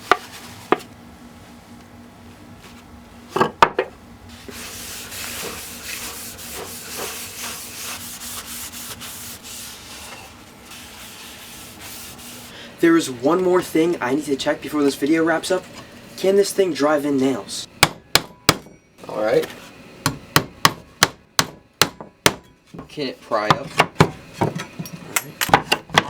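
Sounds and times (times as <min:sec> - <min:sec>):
cloth rubbing wood: 0:04.3 - 0:12.6.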